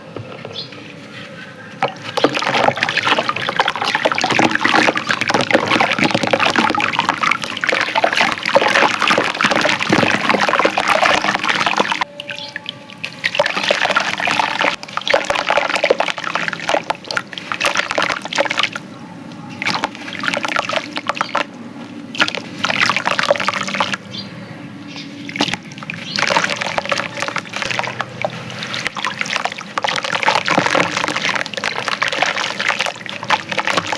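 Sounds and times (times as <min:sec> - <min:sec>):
clay crumbling in water: 0:01.8 - 0:12.1, 0:25.3 - 0:33.9
water sloshing and trickling: 0:01.8 - 0:24.2, 0:24.8 - 0:33.9.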